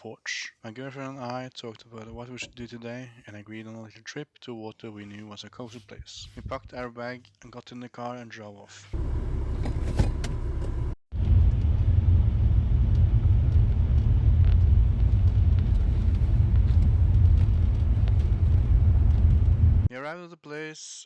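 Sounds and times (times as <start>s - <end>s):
car engine and road rumble: 8.9s - 19.9s.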